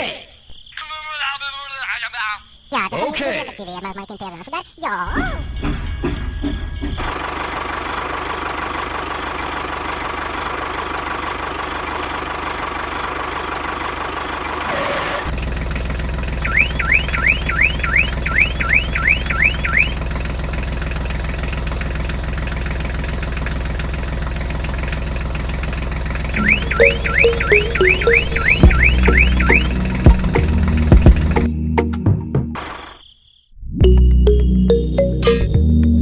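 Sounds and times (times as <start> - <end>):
rising electronic chirps: 16.4 - 19.9, 26.4 - 30.2.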